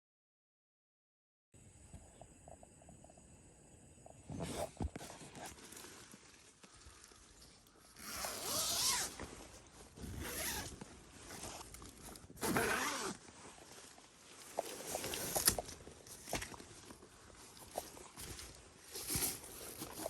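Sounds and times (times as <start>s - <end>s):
zipper rasping: 8.0s - 9.2s, 10.0s - 10.8s, 12.4s - 13.2s.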